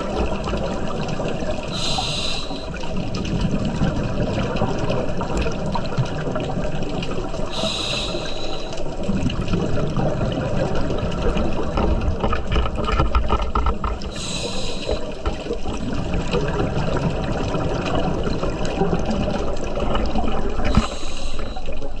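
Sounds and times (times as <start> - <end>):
underwater bubbling: 0.0 - 22.0
regulator hiss: 1.7 - 2.8, 7.5 - 8.8, 14.2 - 15.2, 20.6 - 21.9.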